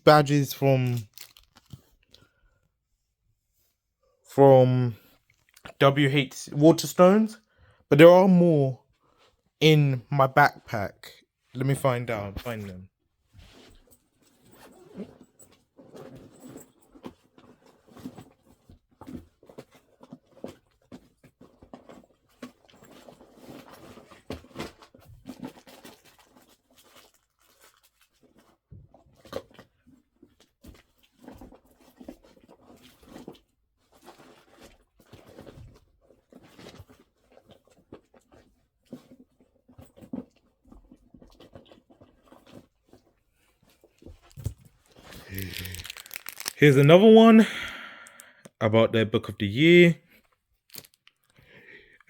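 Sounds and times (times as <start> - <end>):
rustling in a backpack: 13.4 - 27.7, 43.6 - 47.3.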